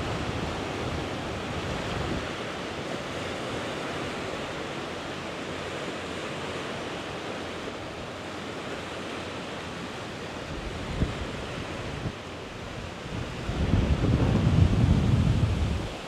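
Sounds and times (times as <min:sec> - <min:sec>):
wind buffeting microphone: 0:00.0 - 0:02.6, 0:10.4 - 0:16.0.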